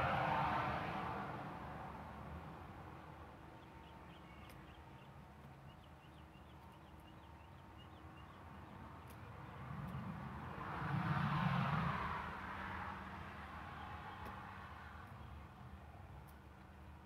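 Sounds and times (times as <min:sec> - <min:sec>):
faint clicks: 0:04.4 - 0:04.7, 0:16.2 - 0:16.7.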